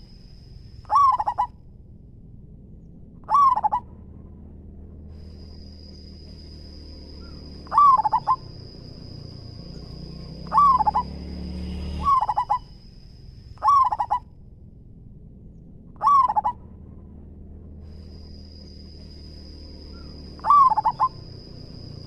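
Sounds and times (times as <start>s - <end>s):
low rumble: 0.0s - 22.0s
dove cooing: 0.8s - 1.5s, 3.2s - 3.9s, 7.2s - 9.2s, 9.8s - 11.2s, 12.0s - 12.8s, 13.6s - 14.2s, 16.0s - 16.6s, 20.0s - 21.5s.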